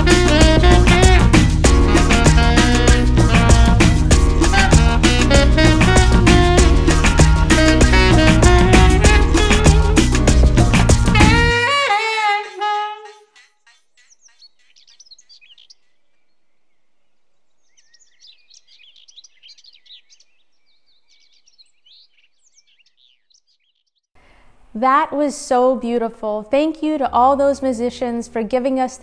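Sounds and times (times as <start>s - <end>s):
jazz music: 0.0s - 13.4s
birds chirping: 13.4s - 24.1s.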